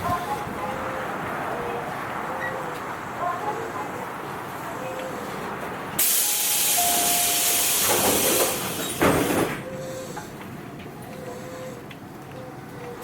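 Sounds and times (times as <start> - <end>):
train car humming: 0.0 - 13.0
compressed air hissing: 6.0 - 9.0.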